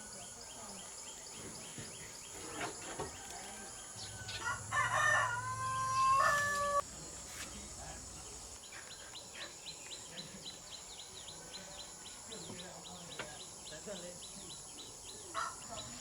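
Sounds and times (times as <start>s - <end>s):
faint small birds chirping: 0.0s - 16.0s
long loud bird cry: 3.2s - 6.8s.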